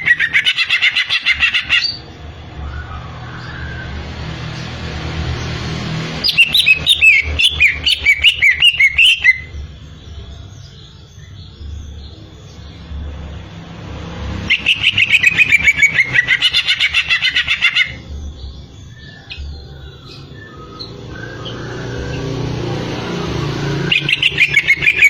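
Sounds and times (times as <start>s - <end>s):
bird singing whistled notes: 6.2s - 10.1s, 14.5s - 22.4s, 23.7s - 25.0s.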